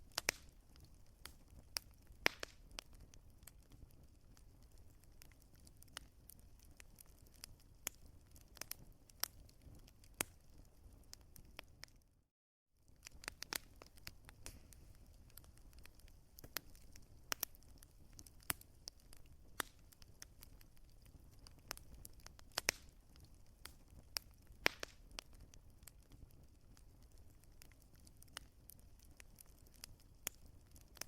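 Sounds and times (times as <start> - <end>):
wood fire crackling: 0.0 - 12.2, 12.8 - 31.0.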